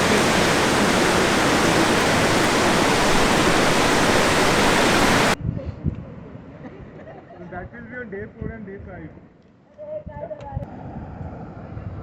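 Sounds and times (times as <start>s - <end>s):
mountain stream rushing: 0.0s - 5.4s.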